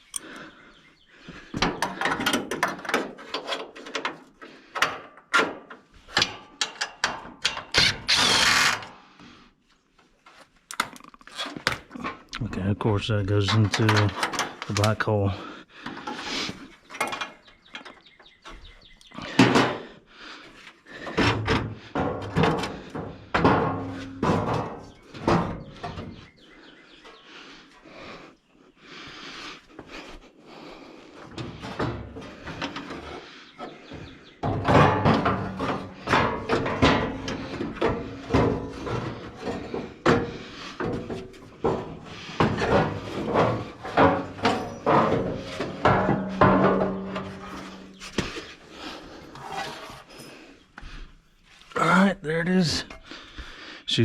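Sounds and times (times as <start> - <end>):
hand tools clanking: 13.3 - 16.2, 20.9 - 26.2, 33.9 - 50.4.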